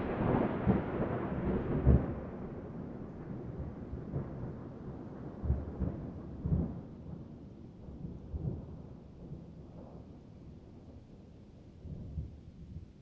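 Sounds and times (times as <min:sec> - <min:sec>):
thunder rumbling: 0:00.0 - 0:06.8.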